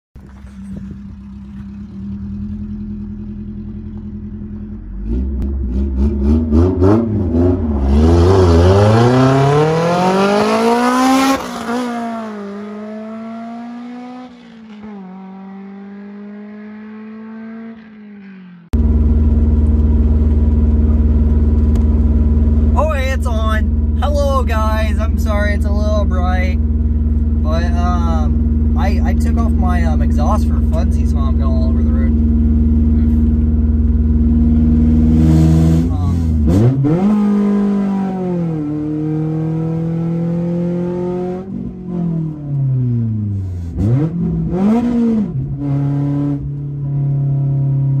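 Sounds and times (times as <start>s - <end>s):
car passing and driving off: 0.2s - 22.7s
car engine revving: 0.2s - 48.0s.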